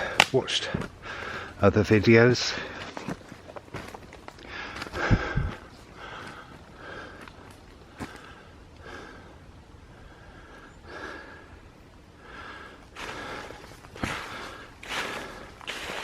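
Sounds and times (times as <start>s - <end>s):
footsteps on forest floor: 0.0s - 8.4s, 12.9s - 16.0s
person breathing hard: 0.9s - 1.6s, 4.4s - 11.6s, 12.2s - 16.0s.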